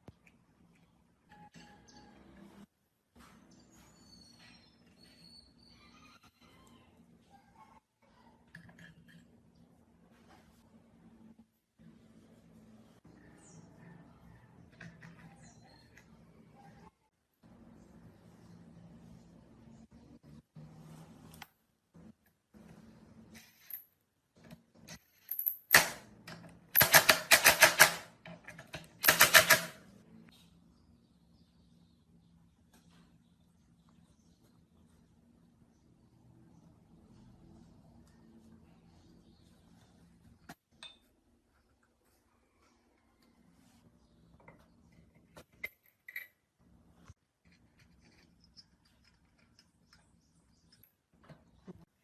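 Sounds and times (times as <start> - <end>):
faint low hum: 29.8 - 52.0.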